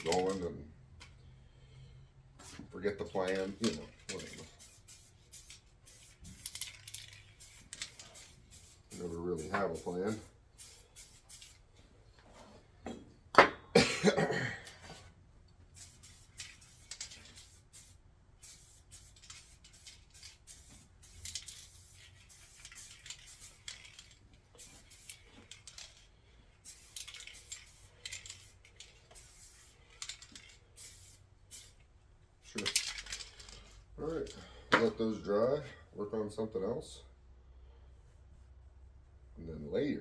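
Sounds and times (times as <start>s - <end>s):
aerosol spray can hissing: 4.4s - 6.6s, 7.2s - 11.6s, 15.7s - 23.8s, 24.6s - 25.6s, 26.6s - 29.9s
person clearing throat: 13.7s - 14.8s.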